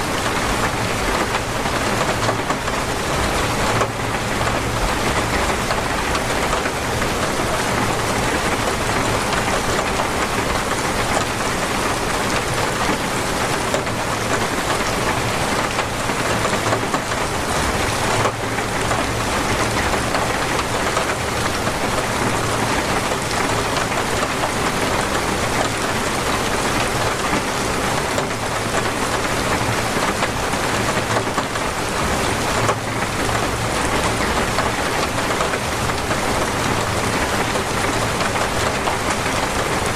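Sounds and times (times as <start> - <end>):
torrential rain hissing: 0.0 - 39.9.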